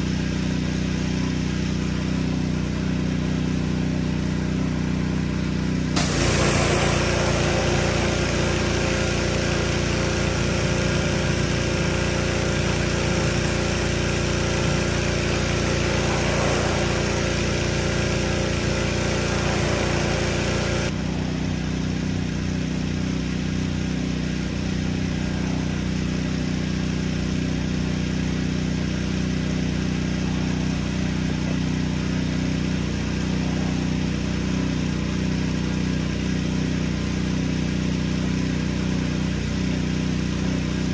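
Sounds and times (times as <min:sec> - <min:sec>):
engine running: 0:00.0 - 0:40.9
loud spray hiss: 0:06.0 - 0:20.9.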